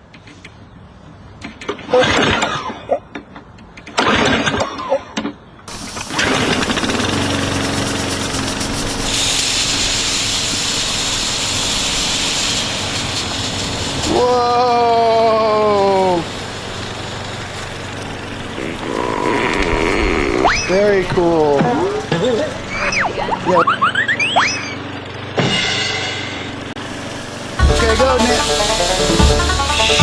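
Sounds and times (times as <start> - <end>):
lawn mower engine pull-started: 5.7 - 23.6, 26.5 - 30.0
high steady hiss: 7.6 - 23.6, 26.5 - 30.0.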